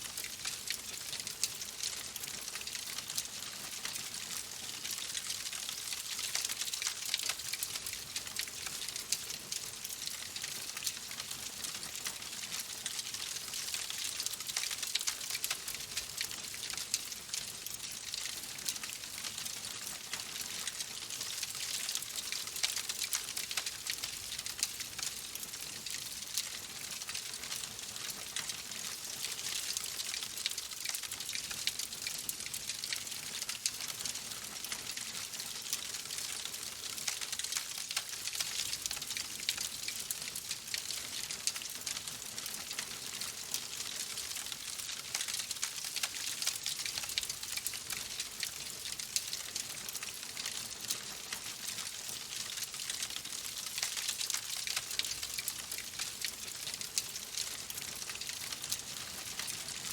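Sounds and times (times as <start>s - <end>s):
wood fire crackling: 51.7s - 58.6s.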